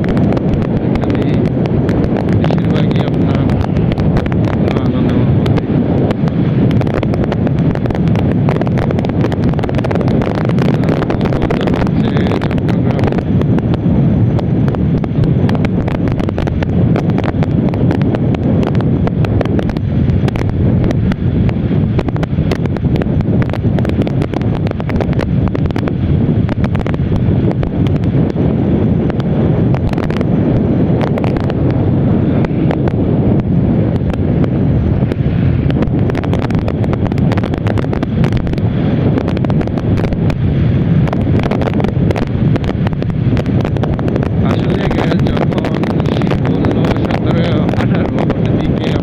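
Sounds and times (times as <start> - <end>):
motorcycle running: 0.0 - 49.0
wind rushing over microphone: 0.0 - 49.0.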